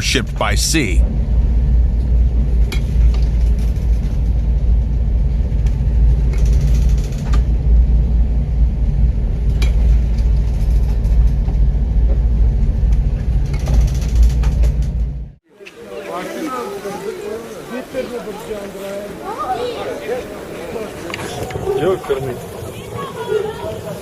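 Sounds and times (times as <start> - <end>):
loud low rumble on ship: 0.0 - 15.4.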